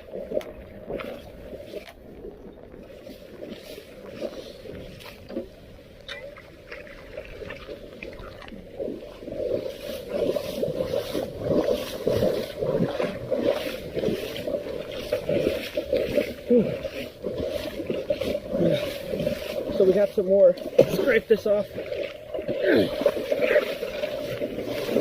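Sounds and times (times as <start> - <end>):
floodwater sloshing and splashing: 0.0 - 25.0.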